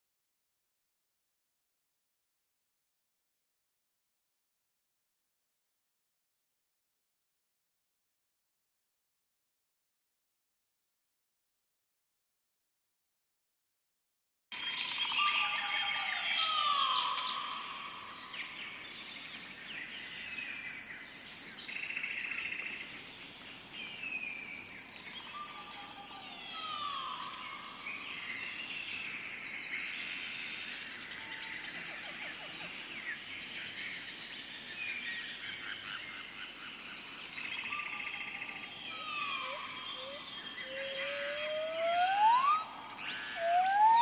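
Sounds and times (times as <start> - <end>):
bird calls and chirps: 14.6 - 44.0
steady high tone: 40.0 - 44.0.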